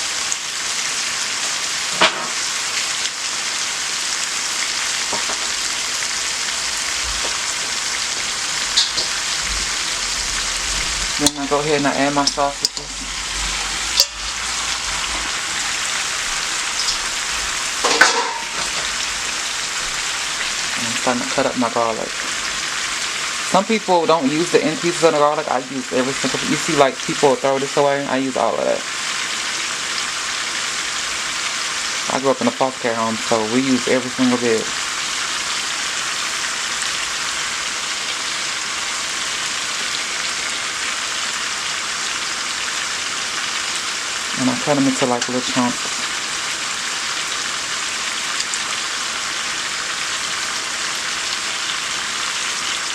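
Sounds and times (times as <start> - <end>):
meat sizzling in a hot pot: 0.0 - 52.9.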